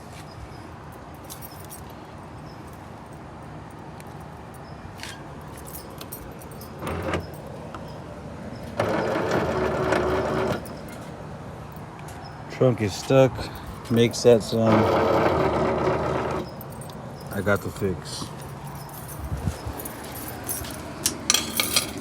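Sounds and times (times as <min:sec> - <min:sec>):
latch actuator clicking and buzzing: 0:06.7 - 0:08.0.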